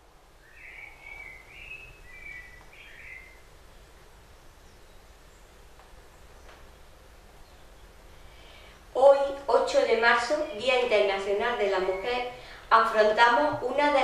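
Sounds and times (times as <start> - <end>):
low background noise: 0.0 - 14.0
bird warbling chirps: 0.4 - 3.5.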